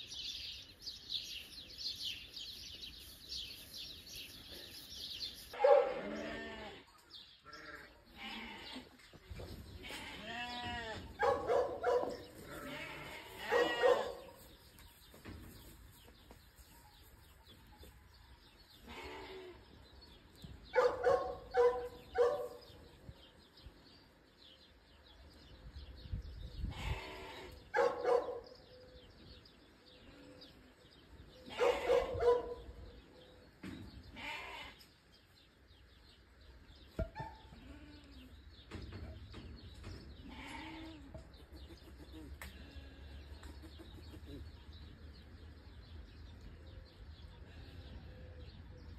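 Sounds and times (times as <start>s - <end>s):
animal cries: 12.5s - 14.2s.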